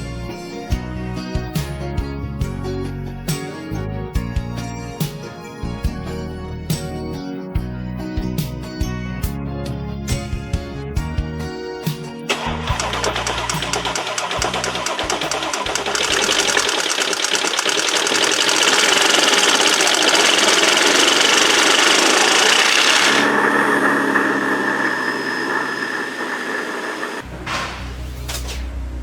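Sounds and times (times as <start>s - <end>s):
machine buzzing loudly: 12.3s - 27.6s.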